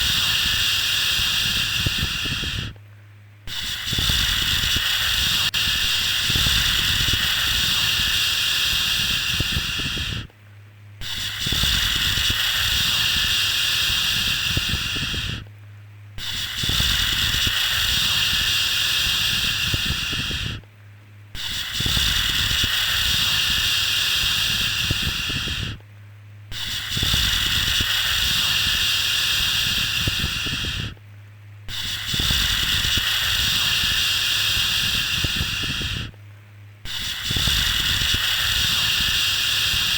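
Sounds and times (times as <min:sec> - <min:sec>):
low steady hum: 0:00.0 - 0:39.9.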